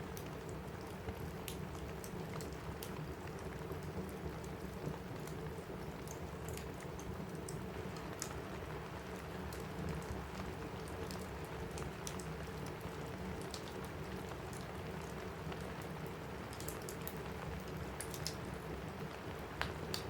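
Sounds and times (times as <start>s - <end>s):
rain on a roof: 0.0s - 20.0s.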